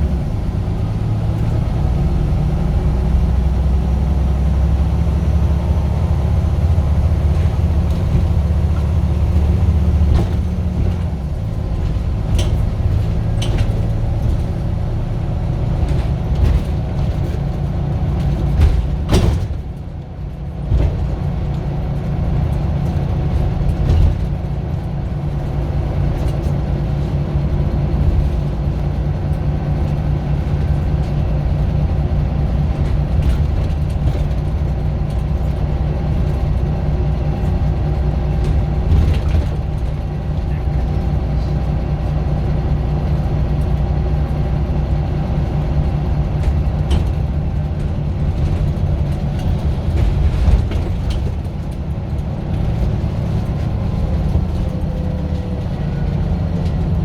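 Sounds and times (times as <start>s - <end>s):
bus diesel engine droning: 0.0s - 57.0s
rattles and clicks: 7.2s - 57.0s
clunk: 7.3s - 14.9s, 15.7s - 20.0s, 38.4s - 41.0s, 46.4s - 55.7s.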